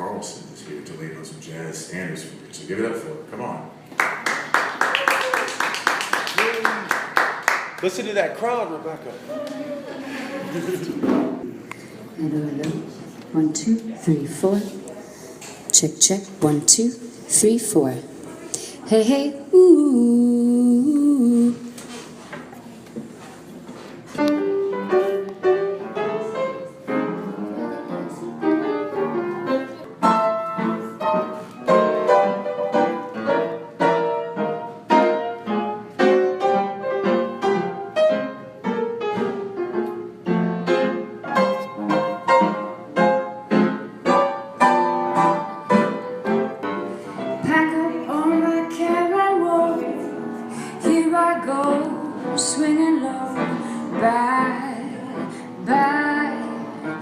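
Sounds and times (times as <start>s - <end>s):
live jazz piano music: 22.5s - 57.0s.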